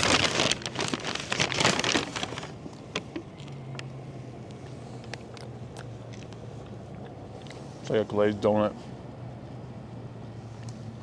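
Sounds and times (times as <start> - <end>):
paper bag crinkling: 0.0 - 3.2
vehicle engine hum: 0.0 - 11.0.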